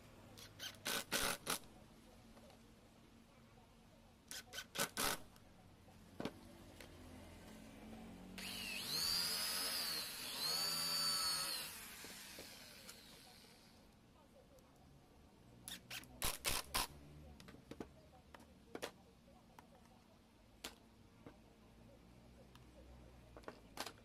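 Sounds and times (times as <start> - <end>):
small power tool motor whining: 8.4 - 13.8.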